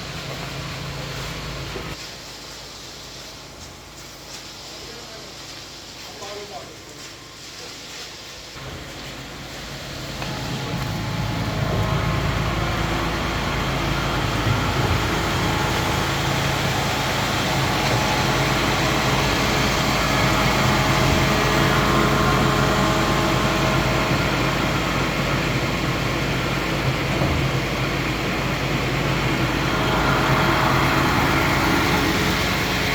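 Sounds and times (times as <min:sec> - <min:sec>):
heavy engine humming: 0:08.6 - 0:32.9.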